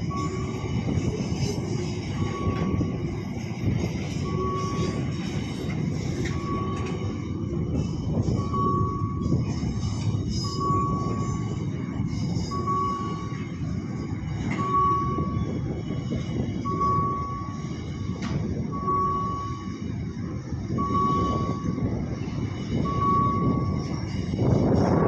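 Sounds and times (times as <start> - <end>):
crossing signal electronic beep: 0.0 - 5.4, 6.2 - 11.8, 12.4 - 13.8, 14.6 - 18.1, 18.7 - 19.8, 20.7 - 21.9, 22.6 - 24.0
freight train rumbling past: 0.0 - 25.0.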